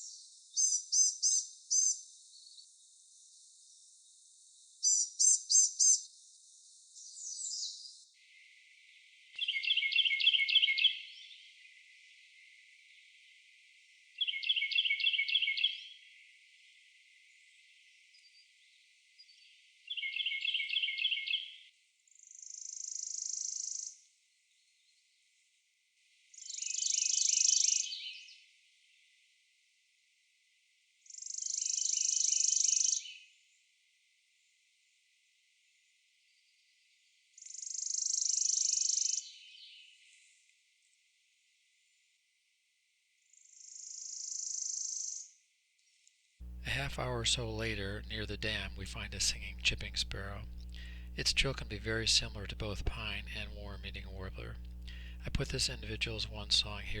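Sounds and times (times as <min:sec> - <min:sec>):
warbler trills: 0:00.0 - 0:02.6, 0:04.8 - 0:06.1
wren songs: 0:00.0 - 0:08.1, 0:46.4 - 0:57.0.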